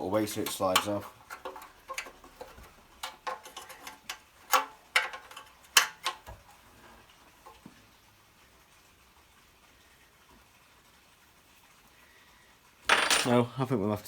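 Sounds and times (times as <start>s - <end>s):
metallic clicks and knocks: 0.3s - 6.4s.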